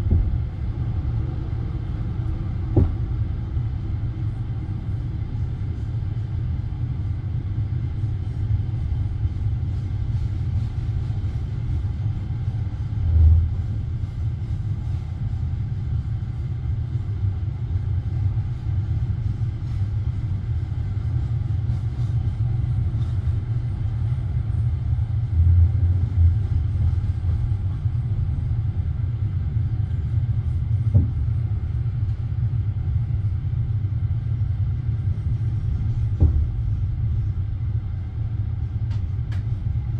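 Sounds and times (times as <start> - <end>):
train wheels rumbling on track: 0.0 - 39.9
thuds and knocks: 2.7 - 3.1, 30.9 - 31.2, 36.2 - 36.6.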